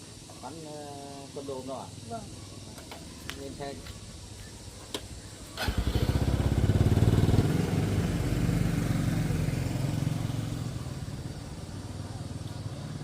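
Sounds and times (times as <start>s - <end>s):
motorcycle engine pulling away: 5.5s - 13.0s.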